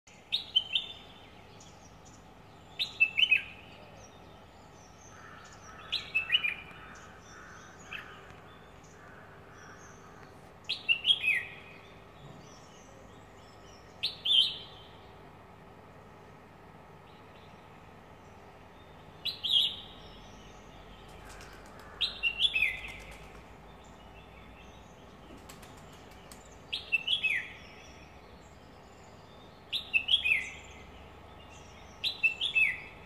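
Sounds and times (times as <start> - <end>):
bird singing whistled notes: 0.2 - 4.3, 10.7 - 15.0, 26.7 - 33.0.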